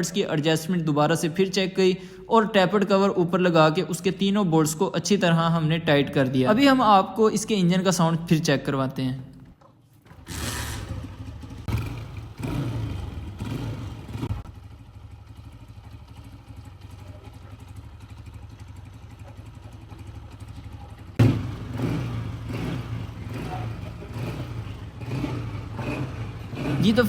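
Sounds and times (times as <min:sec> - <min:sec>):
motorcycle engine running: 0:10.1 - 0:27.0.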